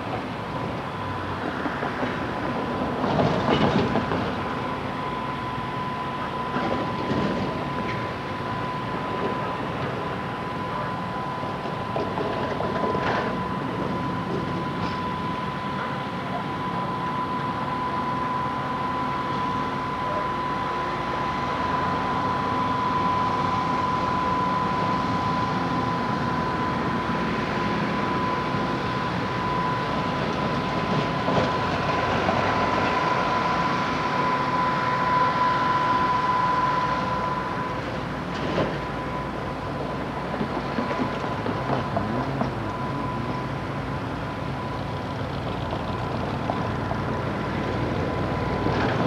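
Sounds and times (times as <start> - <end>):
train cars rumbling: 0.0 - 49.0
thin high tone: 32.5 - 38.2.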